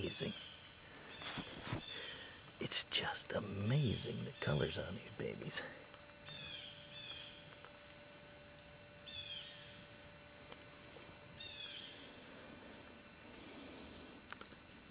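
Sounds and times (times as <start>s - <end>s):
faint bird call: 0.0s - 2.4s, 11.4s - 12.2s.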